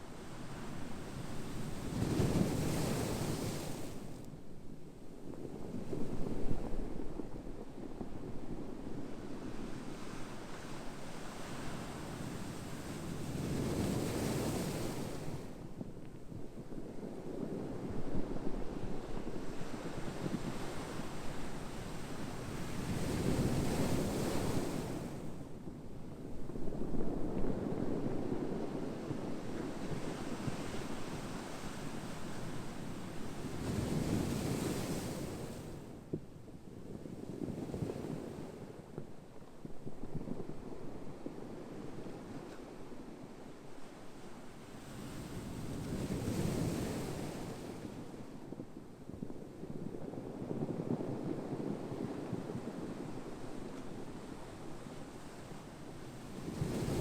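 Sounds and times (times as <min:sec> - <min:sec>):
ocean waves washing on shore: 0:00.0 - 0:04.2, 0:40.0 - 0:57.0.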